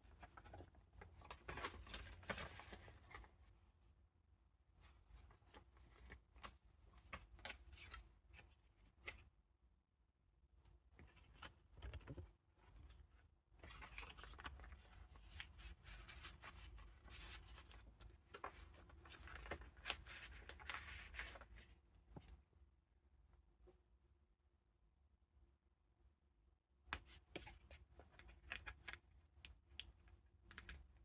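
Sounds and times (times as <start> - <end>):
paper pages rustling and crinkling: 0.1 - 3.3, 13.6 - 22.3.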